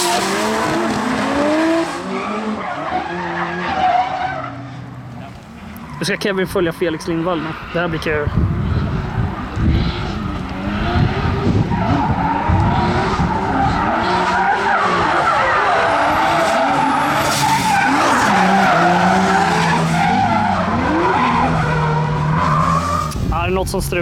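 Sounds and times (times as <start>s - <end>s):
car engines revving: 0.0s - 24.0s
tyres squealing: 5.2s - 8.4s, 13.5s - 23.2s.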